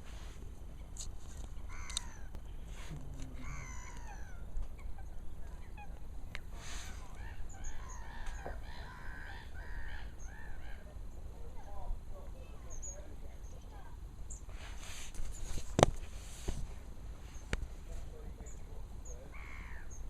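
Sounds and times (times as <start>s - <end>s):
waterbirds calling: 3.3s - 11.8s, 18.2s - 20.0s.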